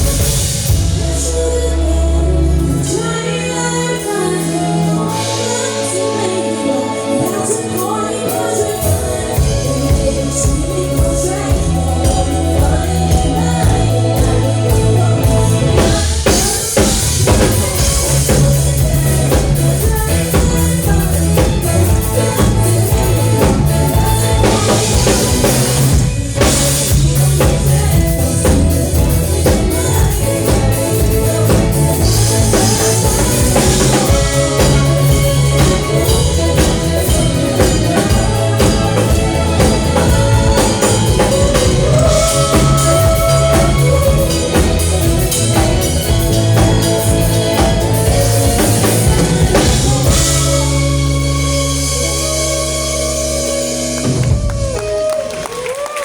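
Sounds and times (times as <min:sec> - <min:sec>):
drum kit beat: 0:00.0 - 0:01.2, 0:07.4 - 0:55.6
bass line: 0:00.0 - 0:56.0
person singing: 0:00.0 - 0:56.0.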